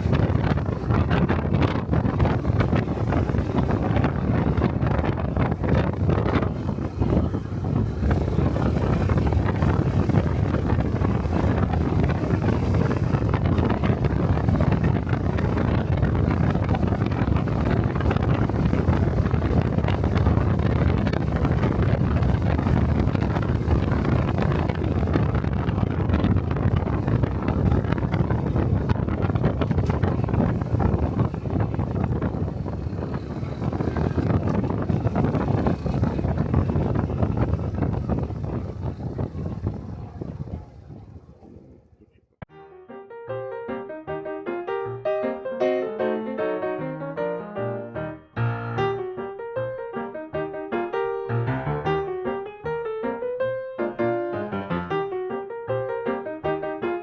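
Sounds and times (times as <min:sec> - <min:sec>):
motorcycle engine running: 0:00.0 - 0:41.9
wind buffeting microphone: 0:00.0 - 0:42.5.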